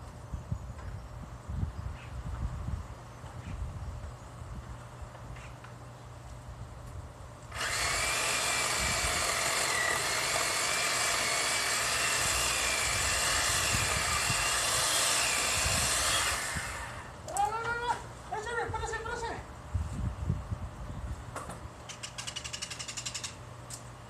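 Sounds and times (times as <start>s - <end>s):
chainsaw running at high speed: 7.6s - 17.1s.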